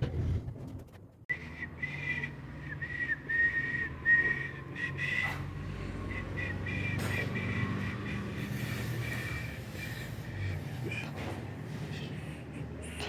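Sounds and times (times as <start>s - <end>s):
high thin whistling: 1.3s - 11.0s.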